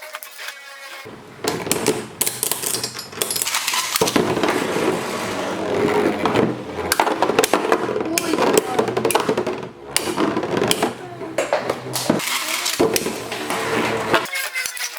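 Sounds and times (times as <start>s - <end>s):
spinning tops clashing and rattling: 1.5s - 5.5s, 11.8s - 14.9s.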